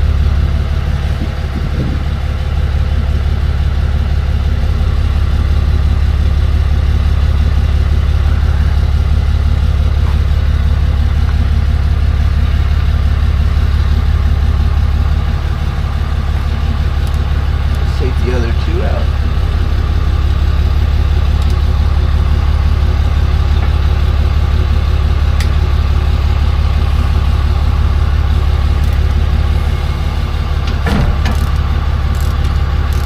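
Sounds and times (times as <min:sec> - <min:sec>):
truck engine idling: 0:00.0 - 0:33.0.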